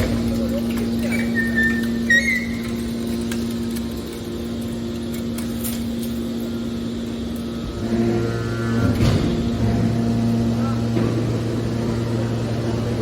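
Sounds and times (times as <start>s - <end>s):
factory machinery humming: 0.0s - 13.0s
low machine note: 6.6s - 13.0s.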